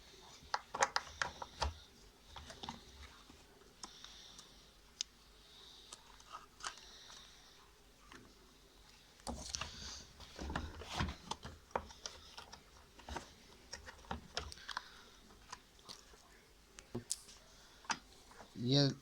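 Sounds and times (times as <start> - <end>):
hard plastic parts clicking: 0.5 - 3.1, 9.2 - 16.0.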